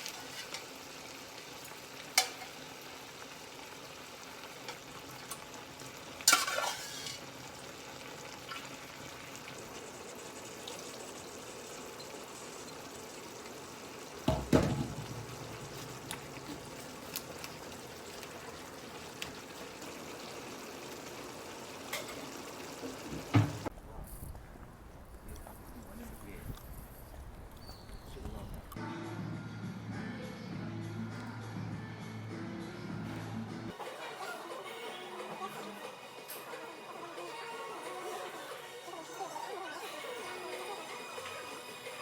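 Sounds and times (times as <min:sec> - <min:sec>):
food sizzling in frying: 0:00.0 - 0:23.7, 0:33.7 - 0:42.0
utensils clattering: 0:06.2 - 0:07.4, 0:21.6 - 0:23.7.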